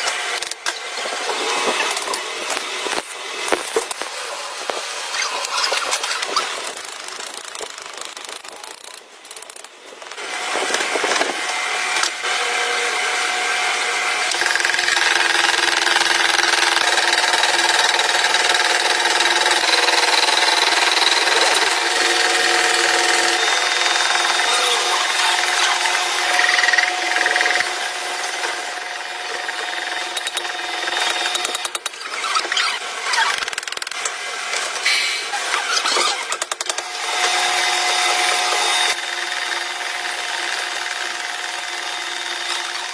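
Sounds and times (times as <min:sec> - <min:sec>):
power tool motor whine: 0:10.2 - 0:42.9.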